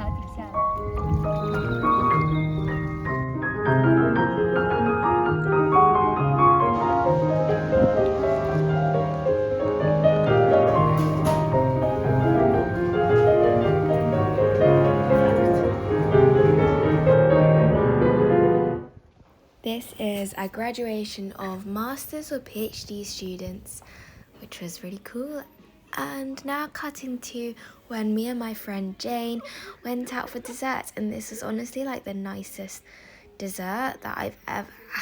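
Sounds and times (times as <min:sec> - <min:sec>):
solo piano music: 0:00.0 - 0:19.0.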